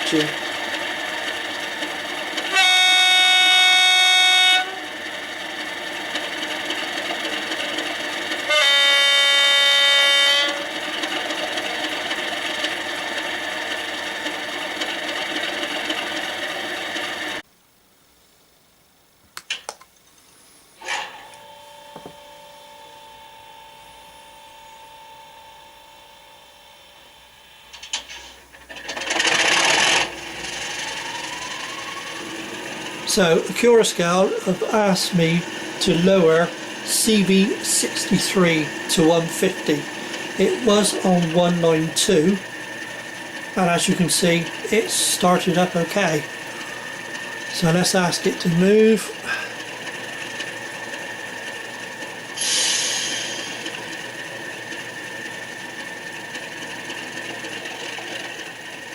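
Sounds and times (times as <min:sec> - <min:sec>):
diesel engine sound from speaker: 0:00.0 - 0:17.4, 0:27.9 - 0:58.9
locomotive horn blasts: 0:02.2 - 0:05.8, 0:08.4 - 0:11.2, 0:32.2 - 0:49.6
faint steady hum: 0:17.3 - 0:28.4.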